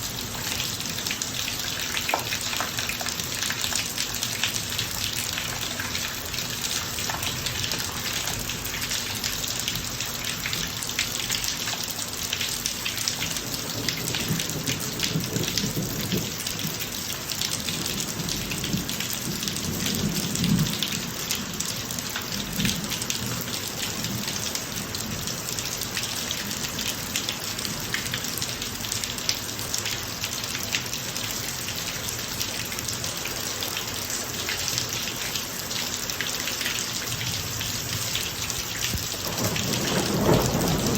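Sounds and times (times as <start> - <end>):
heavy rain on pavement: 0.0 - 40.9
low rumble of thunder: 13.4 - 17.0, 17.6 - 21.6, 37.2 - 40.9.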